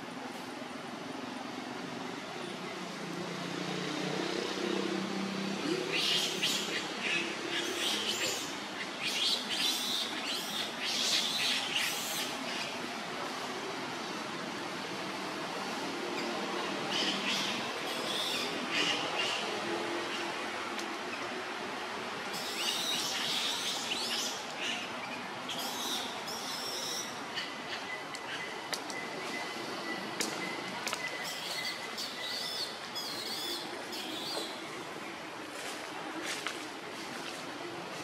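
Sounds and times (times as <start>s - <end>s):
birds chirping: 22.4s - 34.8s.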